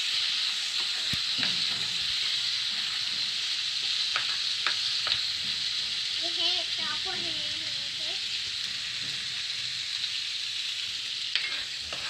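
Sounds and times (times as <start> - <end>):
onions sizzling in hot oil: 0.0 - 12.0
spatula scraping and knocking pan: 0.8 - 9.8, 11.3 - 12.0.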